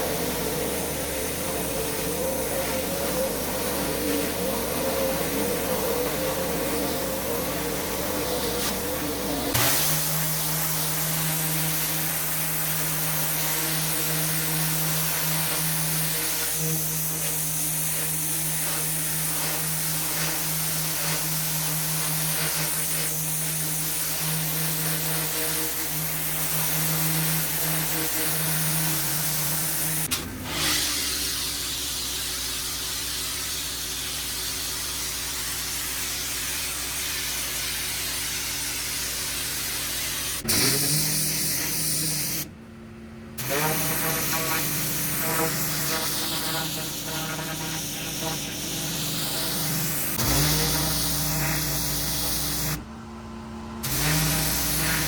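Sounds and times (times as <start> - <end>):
high-pressure water spray hiss: 0.0 - 42.5, 43.4 - 52.8, 53.8 - 55.0
pressure washer motor hum: 0.0 - 55.0.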